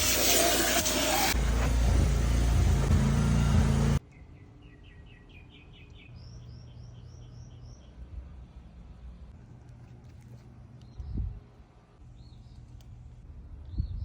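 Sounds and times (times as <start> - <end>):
songbird singing: 4.0 - 8.4.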